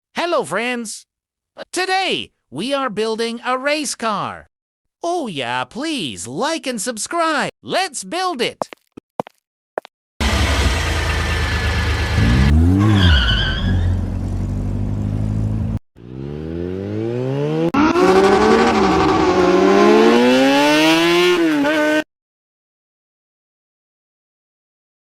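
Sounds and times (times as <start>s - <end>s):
race car engine revving: 10.2s - 13.1s, 16.0s - 22.0s
brief high squeal: 12.8s - 14.0s.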